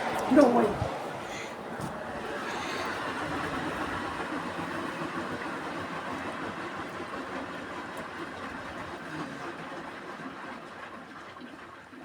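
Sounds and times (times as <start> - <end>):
washing machine rushing noise: 0.0 - 8.9.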